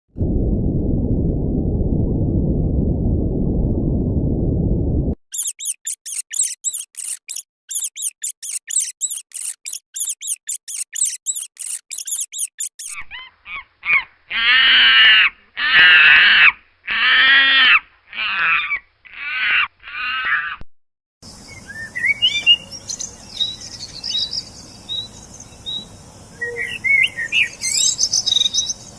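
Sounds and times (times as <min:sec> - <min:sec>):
high-pitched animal chirps: 0:05.3 - 0:14.0
loud harsh animal calls: 0:05.3 - 0:20.6.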